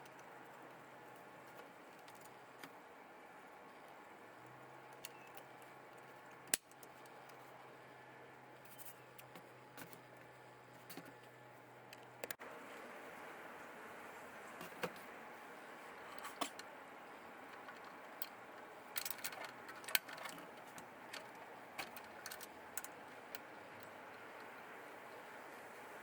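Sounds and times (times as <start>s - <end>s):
faint steady hiss: 0.0s - 26.0s
small tools clicking and clinking: 17.5s - 24.5s.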